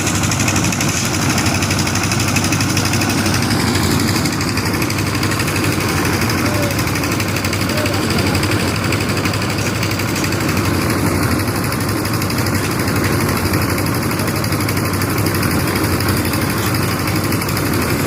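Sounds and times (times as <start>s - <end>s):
machinery engine running: 0.0s - 18.0s.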